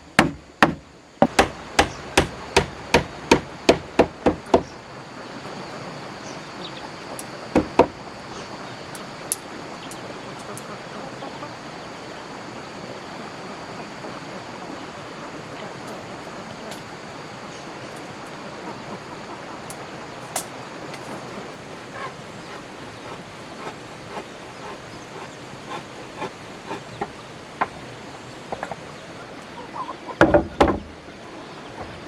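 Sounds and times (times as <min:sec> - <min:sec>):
steady hiss: 0:00.0 - 0:32.0
tool striking wood: 0:00.1 - 0:04.7, 0:07.5 - 0:08.0, 0:30.2 - 0:30.9.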